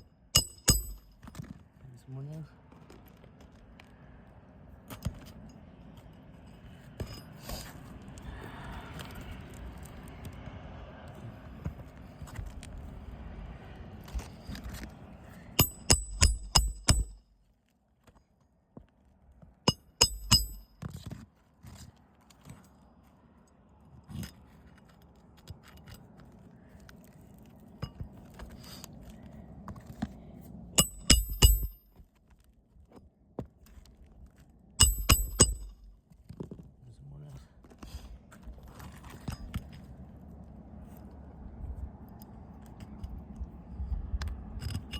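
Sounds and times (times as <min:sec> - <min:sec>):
hammer driving nails: 0:15.6 - 0:17.2, 0:19.7 - 0:20.7, 0:30.8 - 0:31.8, 0:34.8 - 0:35.9.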